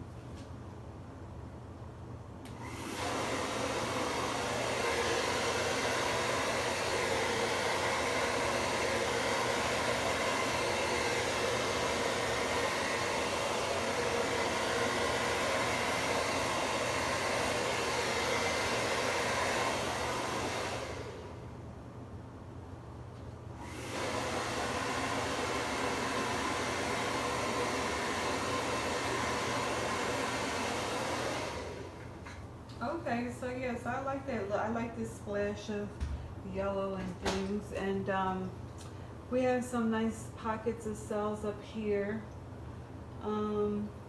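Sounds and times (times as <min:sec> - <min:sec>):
hair dryer blowing: 0:02.5 - 0:21.5, 0:23.6 - 0:32.2.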